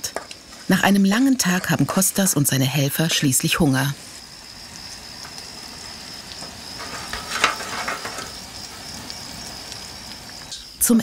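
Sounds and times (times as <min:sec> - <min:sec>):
eggs sizzling in a pan: 0:00.0 - 0:11.0
insect trill: 0:00.0 - 0:11.0.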